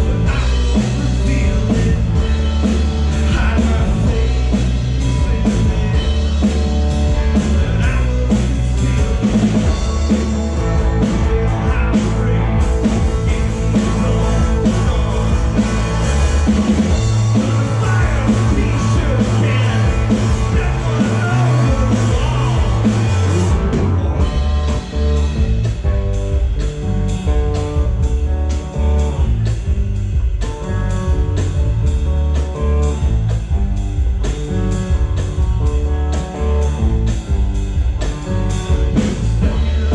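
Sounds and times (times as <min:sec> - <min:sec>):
person singing: 0:00.0 - 0:06.6, 0:07.3 - 0:23.8
bass guitar: 0:00.0 - 0:39.9
drums: 0:00.0 - 0:39.9
electric guitar: 0:00.0 - 0:39.9.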